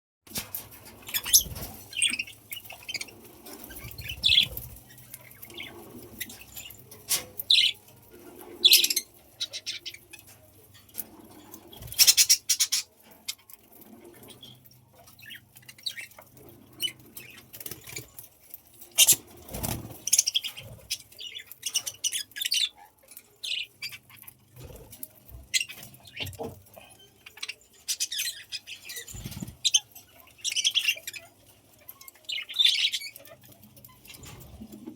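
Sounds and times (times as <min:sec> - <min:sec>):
budgerigars chirping: 0:01.1 - 0:07.8, 0:08.6 - 0:10.0, 0:11.9 - 0:12.9, 0:32.3 - 0:34.3.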